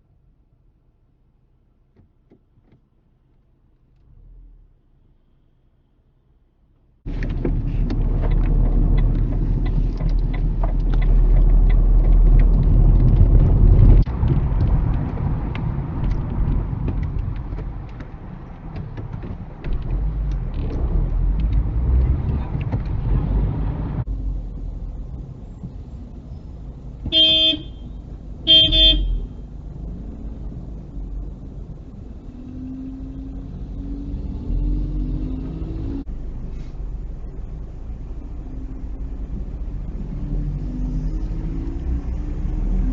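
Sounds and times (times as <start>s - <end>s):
car road and engine noise: 0.0s - 42.9s
car horn toots: 27.1s - 29.4s.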